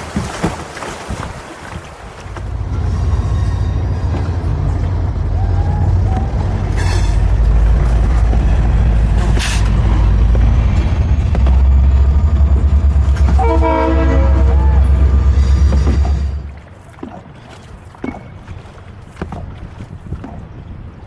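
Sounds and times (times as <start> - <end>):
train rumble: 1.9 - 18.3
high train squeals: 2.4 - 16.6.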